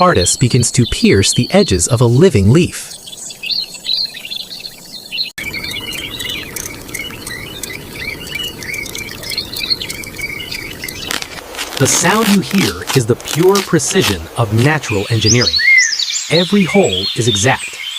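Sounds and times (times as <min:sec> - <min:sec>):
small birds chirping: 0:00.0 - 0:17.9.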